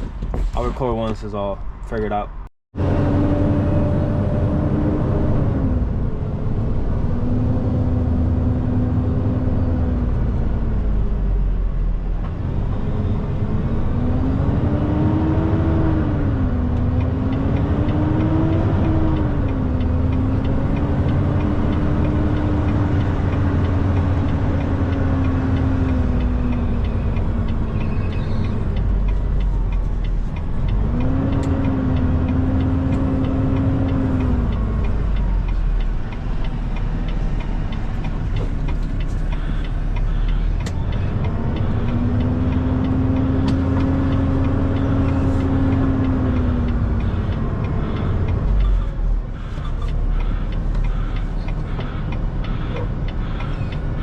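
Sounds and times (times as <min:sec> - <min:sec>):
truck diesel engine running: 0:19.0 - 0:54.0.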